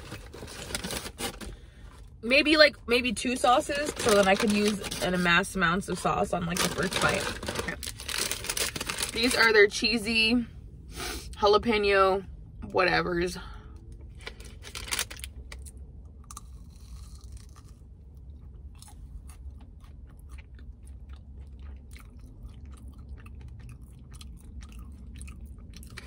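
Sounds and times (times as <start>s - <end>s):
crunchy bites: 14.6s - 26.0s
person chewing: 15.6s - 26.0s.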